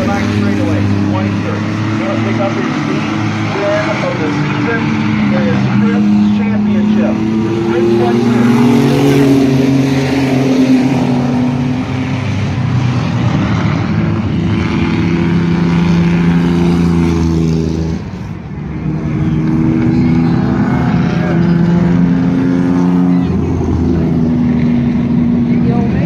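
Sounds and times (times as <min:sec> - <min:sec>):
race truck engines passing: 0:00.0 - 0:26.0.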